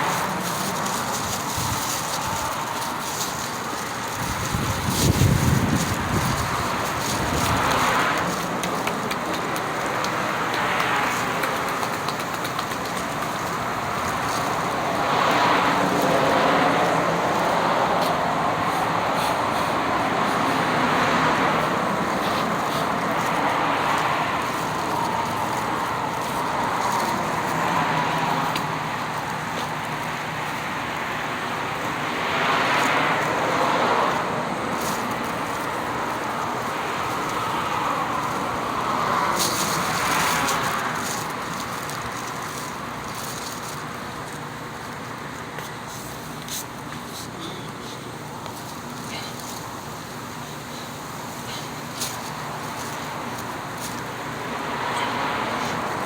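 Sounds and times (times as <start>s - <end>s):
passing road traffic: 0.0s - 56.0s.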